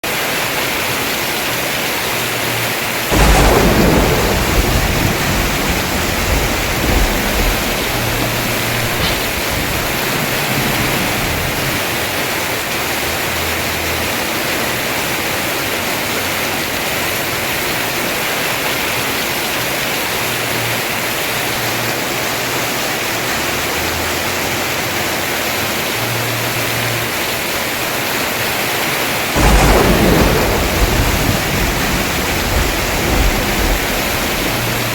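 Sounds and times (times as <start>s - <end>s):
heavy rain on a roof: 0.0s - 34.9s
thunder rumbling: 3.0s - 20.2s, 29.2s - 34.9s.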